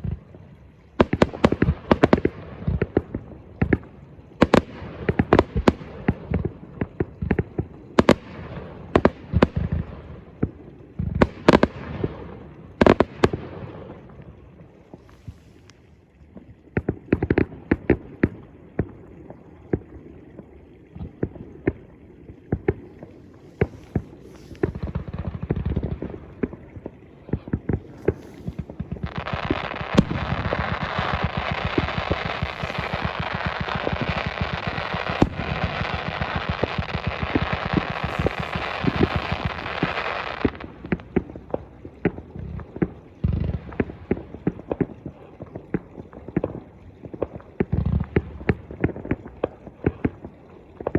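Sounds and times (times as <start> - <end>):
fireworks rapid crackling: 22.6 - 41.7
fireworks bangs and pops: 22.6 - 44.9.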